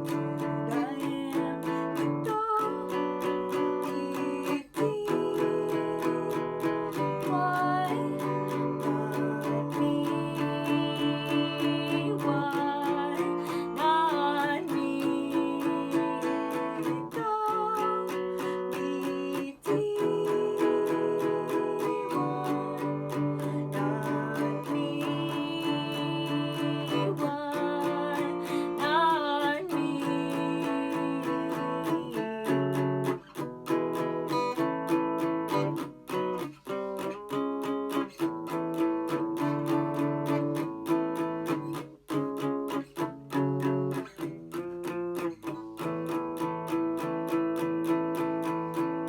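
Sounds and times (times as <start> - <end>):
acoustic guitar strumming chords: 0.0 - 49.0.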